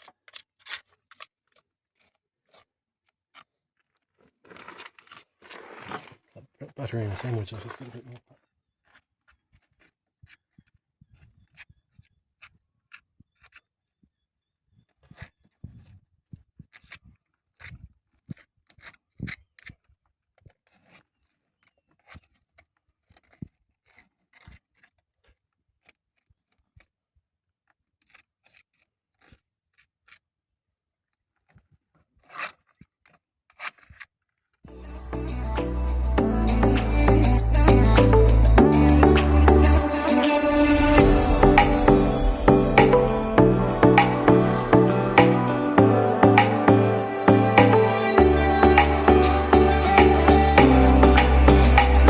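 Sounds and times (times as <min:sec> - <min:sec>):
trowel scraping mortar: 0:00.0 - 0:13.8.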